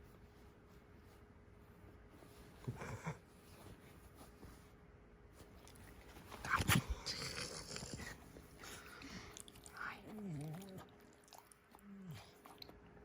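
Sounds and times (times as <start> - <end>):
dog groaning: 6.5 - 8.9, 9.9 - 12.7.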